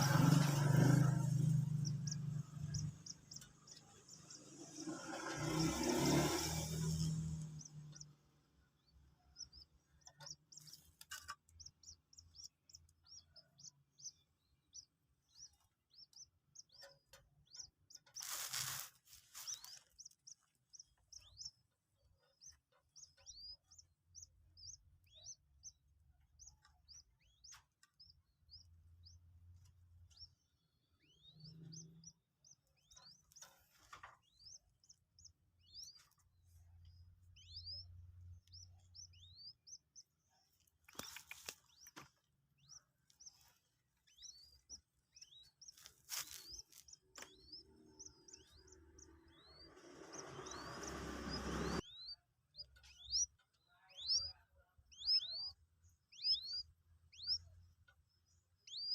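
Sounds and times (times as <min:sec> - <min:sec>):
chick peeping: 0:00.0 - 0:58.9
rustling noise: 0:18.0 - 0:20.2, 0:45.6 - 0:47.4.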